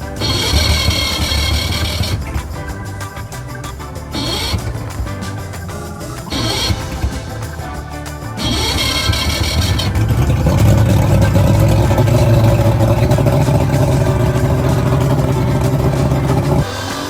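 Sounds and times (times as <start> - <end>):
outboard motor running: 0.0 - 16.8.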